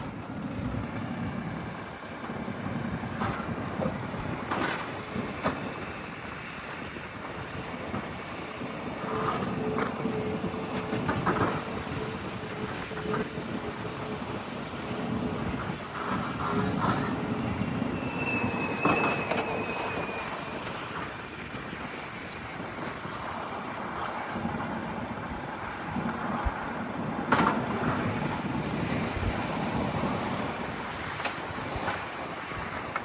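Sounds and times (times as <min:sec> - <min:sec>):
diesel engine running: 0:00.0 - 0:33.0
brief high whine: 0:16.3 - 0:21.7.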